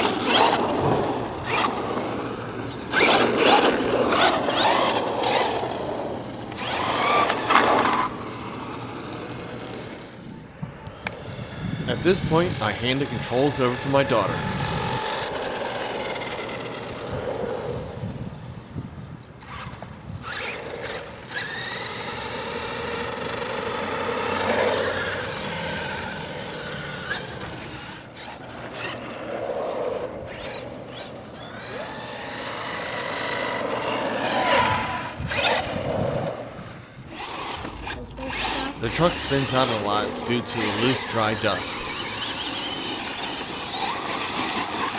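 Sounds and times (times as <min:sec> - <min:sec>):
electric motor whining: 0:00.0 - 0:17.2, 0:32.2 - 0:39.3.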